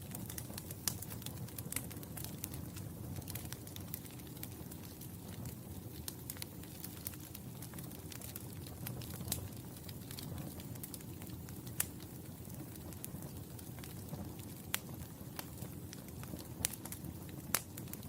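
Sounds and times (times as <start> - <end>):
wood fire crackling: 0.0 - 18.0
fire pops: 0.1 - 18.0.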